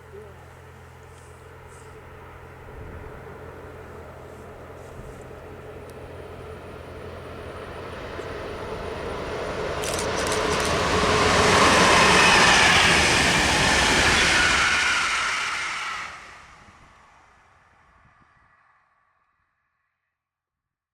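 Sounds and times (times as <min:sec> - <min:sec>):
train passing rumble: 0:00.0 - 0:19.1
sharp clicks: 0:09.8 - 0:10.8.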